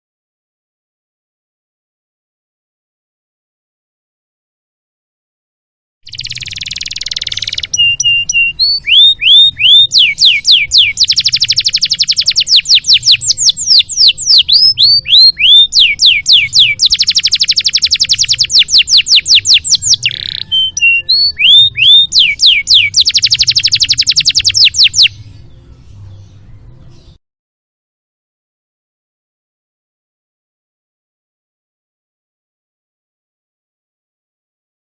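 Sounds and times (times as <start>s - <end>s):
canary singing: 6.1s - 27.2s.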